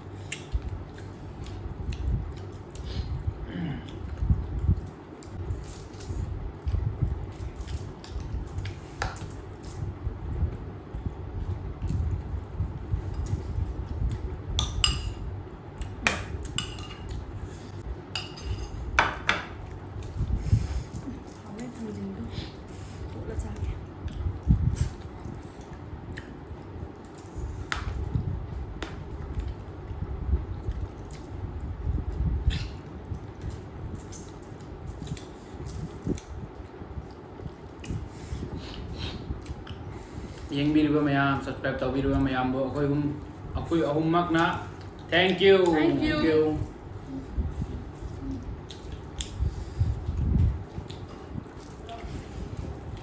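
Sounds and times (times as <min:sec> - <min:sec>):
steady low rumble: 0:00.0 - 0:53.0
utensils clinking against dishes: 0:16.1 - 0:17.2, 0:18.2 - 0:19.5
person chewing food: 0:46.9 - 0:53.0.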